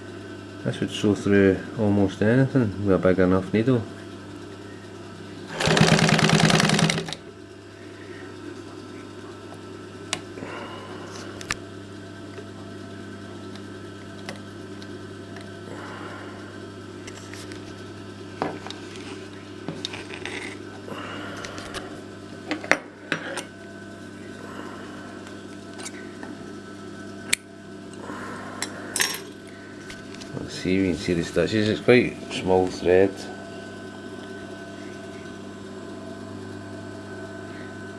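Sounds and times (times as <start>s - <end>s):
steady low hum: 0.0s - 37.9s
sewing machine stitching: 5.5s - 7.2s.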